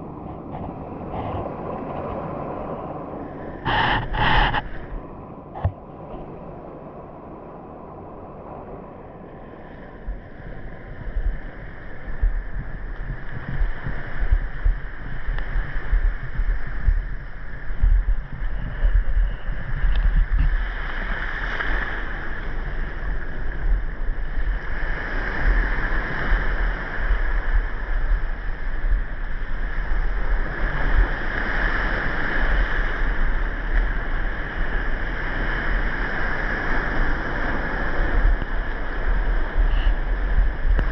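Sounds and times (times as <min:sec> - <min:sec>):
water surging underwater: 0:00.3 - 0:05.0, 0:09.9 - 0:40.9
low rumbling thumps: 0:12.0 - 0:20.8.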